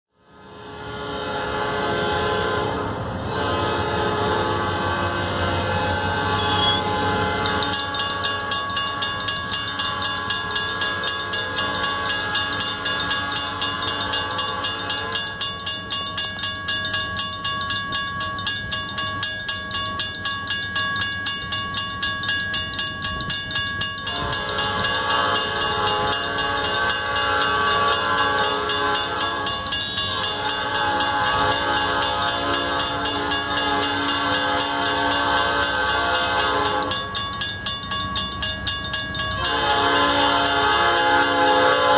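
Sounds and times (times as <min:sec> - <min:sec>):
railroad crossing bells ringing: 0:00.2 - 0:41.9
locomotive air horn blasts: 0:00.3 - 0:09.0, 0:09.7 - 0:15.4, 0:24.0 - 0:37.1, 0:39.4 - 0:41.9.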